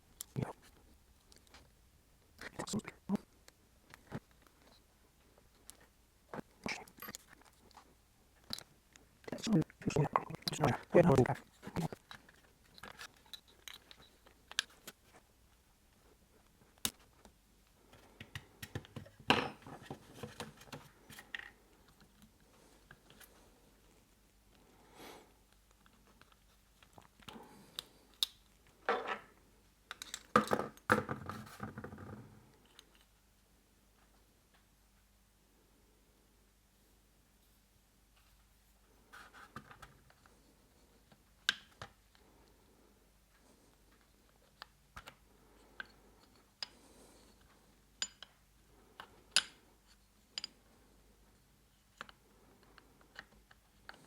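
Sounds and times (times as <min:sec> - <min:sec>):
metal parts and tools clinking: 0:12.0 - 0:14.3.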